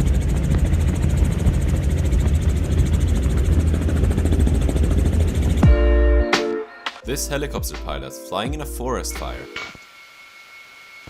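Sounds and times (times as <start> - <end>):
helicopter engine and rotor: 0.0 - 5.7.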